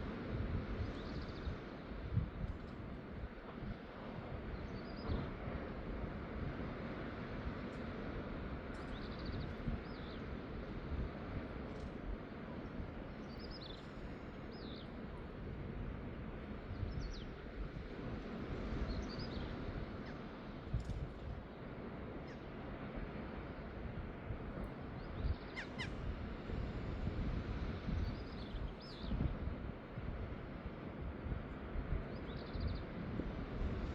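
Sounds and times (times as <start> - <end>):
steady outdoor hiss: 0.0 - 33.9
wind buffeting the microphone: 0.0 - 33.9.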